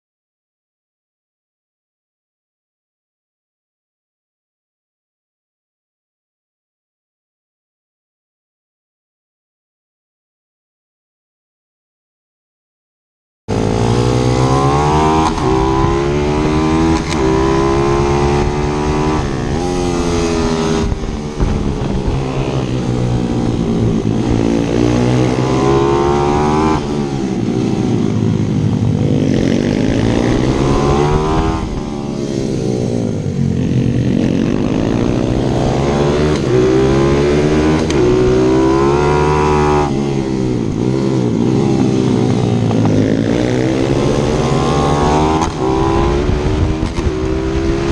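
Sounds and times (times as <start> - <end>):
motorbike engine revving: 13.5 - 47.9.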